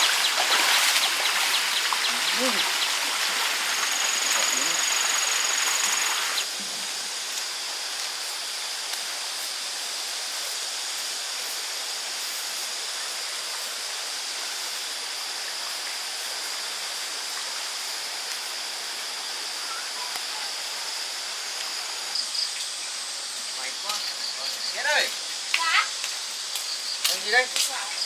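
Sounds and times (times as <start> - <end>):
stream rushing: 0.0 - 7.9
high insect drone: 0.0 - 28.0.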